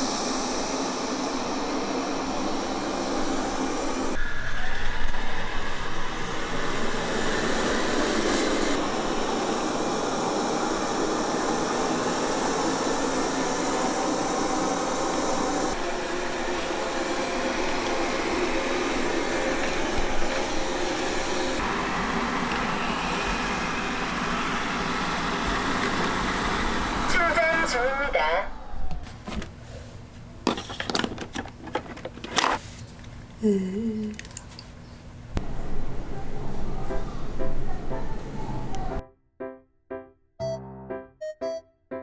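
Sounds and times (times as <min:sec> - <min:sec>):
robot vacuum running: 0:00.0 - 0:29.5.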